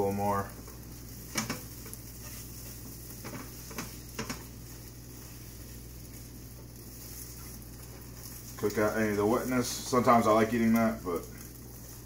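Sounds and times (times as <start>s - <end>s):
eggs sizzling in frying pan: 0.0s - 12.0s
spatula scraping pan: 0.6s - 8.7s.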